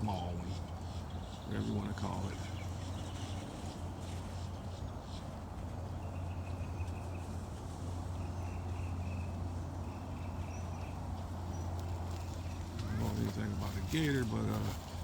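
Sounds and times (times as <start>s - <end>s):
bird chirping: 8.2s - 13.1s.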